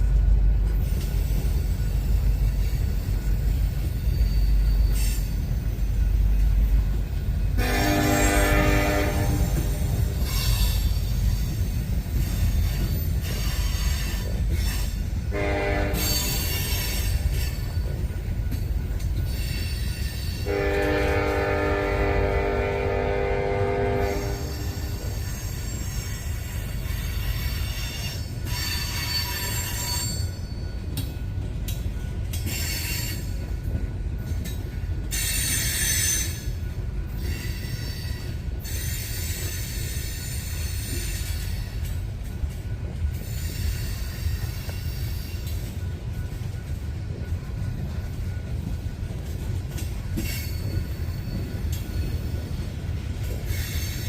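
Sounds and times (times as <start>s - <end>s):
train rolling past rumble: 0.0s - 54.0s
locomotive horn: 7.6s - 10.2s, 15.3s - 16.4s, 20.4s - 25.2s.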